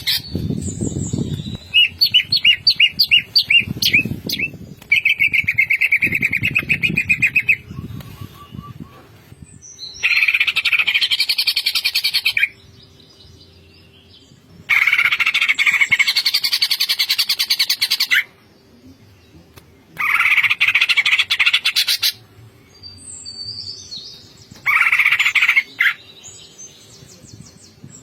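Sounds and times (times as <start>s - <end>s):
bird singing rattling trills: 0.0s - 18.2s.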